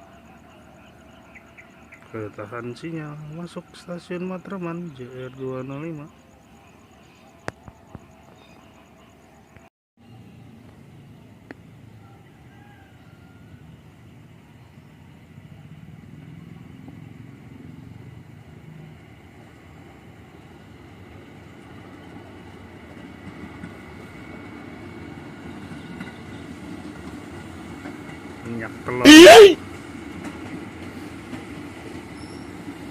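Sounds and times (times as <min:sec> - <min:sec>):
road traffic noise: 0:10.0 - 0:20.8, 0:29.0 - 0:29.6.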